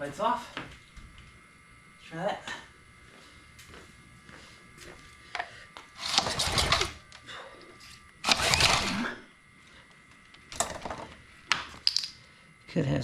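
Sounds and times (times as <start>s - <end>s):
recoil starter rope whirring: 6.0s - 7.2s, 8.2s - 9.2s.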